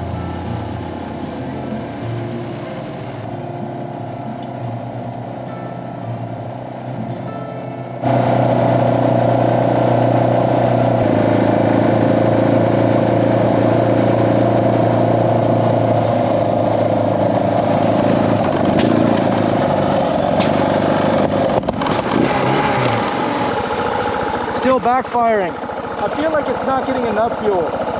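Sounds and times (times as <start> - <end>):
motorcycle engine running: 0.0 - 27.9
engine backfire pops: 18.4 - 23.5.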